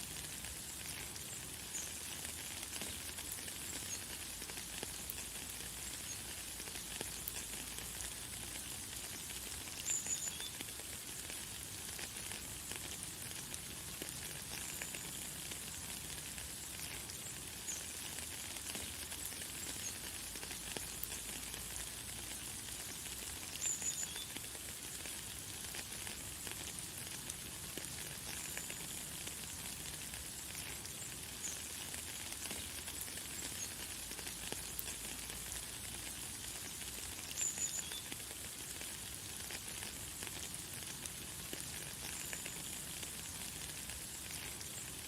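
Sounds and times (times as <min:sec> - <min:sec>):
light rain falling: 0:00.0 - 0:45.0.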